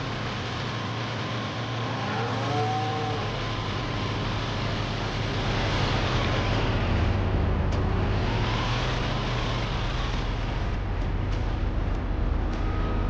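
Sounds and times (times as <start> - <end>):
farm machine engine running: 3.2 - 13.0.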